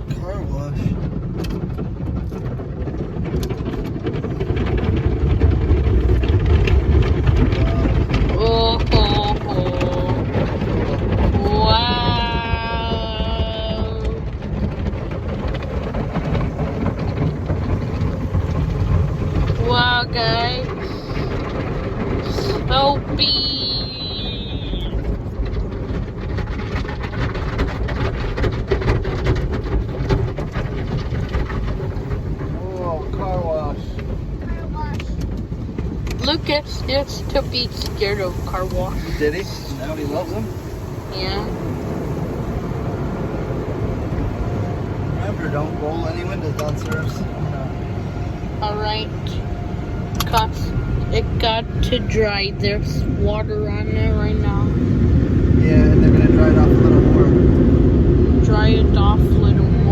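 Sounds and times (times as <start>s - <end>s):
car wash water and machinery: 0.0s - 59.9s
spattering knocks: 0.8s - 42.6s.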